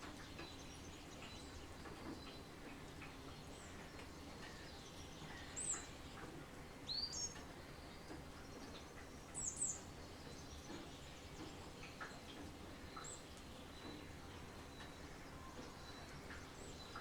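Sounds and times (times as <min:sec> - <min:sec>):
light rain hiss: 0:00.0 - 0:17.0
songbirds chirping: 0:00.1 - 0:17.0.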